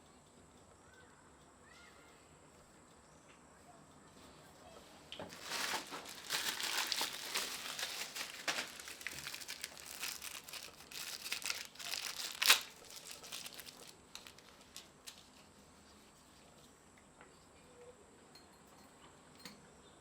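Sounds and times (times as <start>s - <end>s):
crinkling rustling handling noise: 5.2s - 16.0s.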